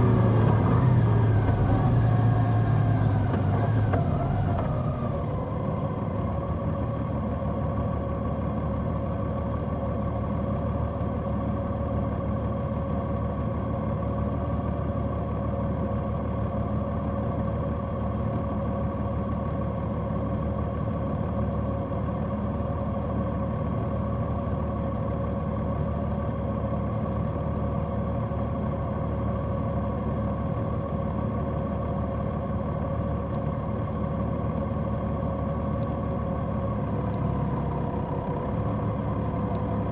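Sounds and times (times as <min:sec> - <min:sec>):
motorcycle engine droning: 0:00.0 - 0:06.0.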